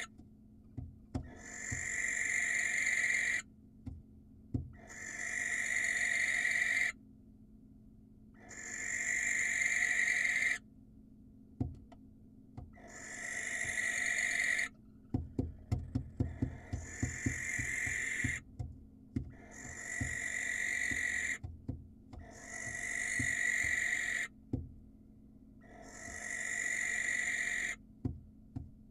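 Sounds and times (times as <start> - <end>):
owl screeching: 1.2 - 3.5, 4.8 - 7.0, 8.4 - 10.6, 12.8 - 14.8, 16.2 - 18.4, 19.3 - 21.4, 22.2 - 24.4, 25.6 - 27.8.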